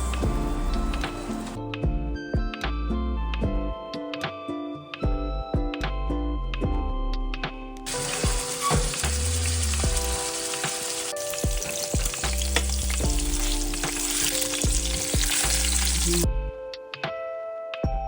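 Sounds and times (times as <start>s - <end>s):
food sizzling in hot oil: 0.0s - 1.6s, 7.9s - 16.2s
background music: 0.0s - 18.0s.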